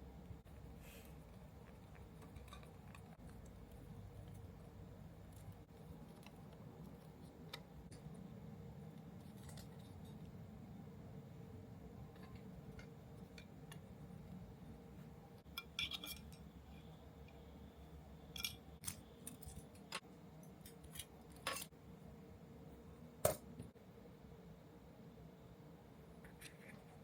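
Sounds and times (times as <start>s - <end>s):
faint steady hum: 0.0s - 27.0s
clicks and clinks of small parts: 18.3s - 21.7s.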